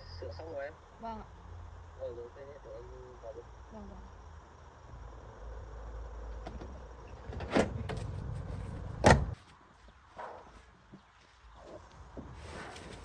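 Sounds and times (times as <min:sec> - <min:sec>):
car door slamming: 0:08.9 - 0:09.4.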